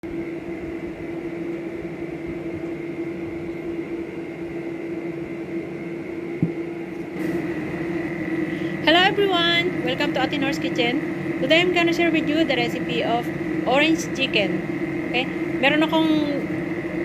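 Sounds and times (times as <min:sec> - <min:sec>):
steady machine hum: 0:00.0 - 0:17.0
short knock: 0:06.4 - 0:06.6.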